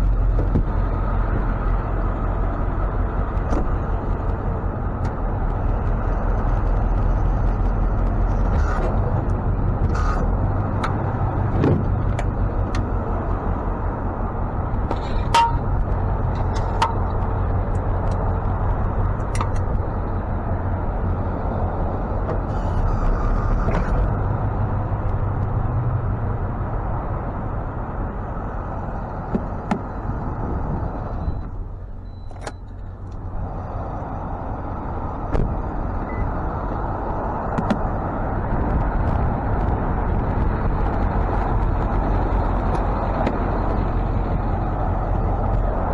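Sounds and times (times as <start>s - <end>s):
truck engine running: 0.0s - 45.9s
equipment clicks and clanks: 14.9s - 18.3s, 19.1s - 19.8s.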